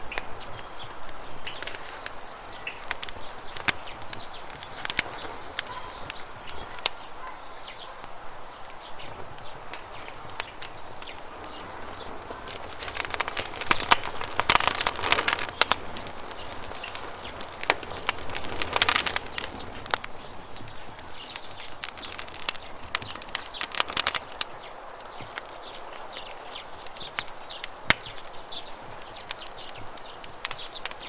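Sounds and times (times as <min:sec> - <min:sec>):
campfire crackling: 0:00.0 - 0:31.0.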